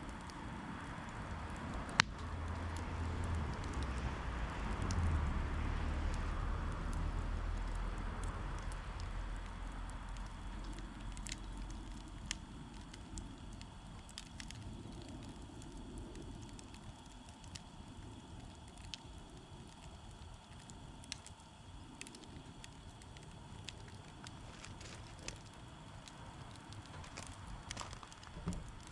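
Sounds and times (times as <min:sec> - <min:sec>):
campfire crackling and popping: 0:00.0 - 0:28.9
low rumble of flame: 0:00.0 - 0:28.9.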